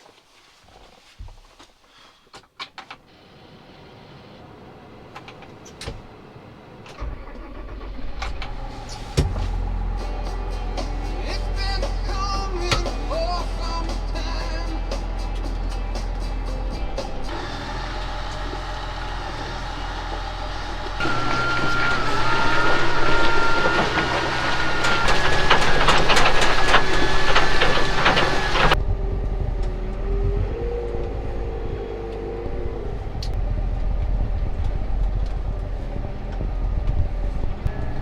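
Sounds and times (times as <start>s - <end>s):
vehicle engine humming: 3.0s - 38.0s
rapid rattling and clanking: 6.9s - 28.8s
high sustained whine: 8.4s - 38.0s
low wavering tone: 28.8s - 38.0s.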